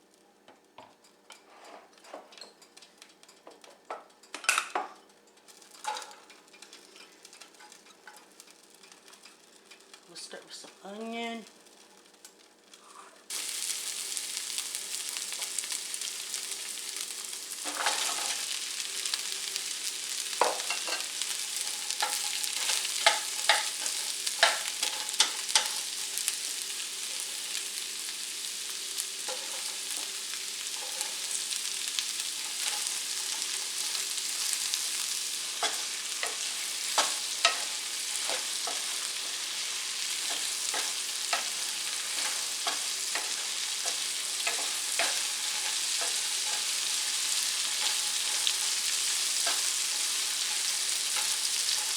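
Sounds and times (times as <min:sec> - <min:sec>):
utensil scraping a pan: 0:01.4 - 0:02.3, 0:32.4 - 0:51.9
onion sizzling in oil: 0:05.4 - 0:51.9.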